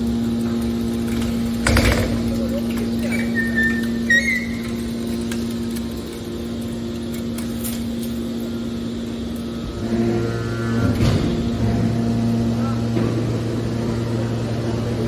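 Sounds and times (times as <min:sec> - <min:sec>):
deeper machine hum: 0:00.0 - 0:15.0
hydraulic baler power unit humming: 0:00.0 - 0:15.0
high squeak: 0:03.0 - 0:04.8.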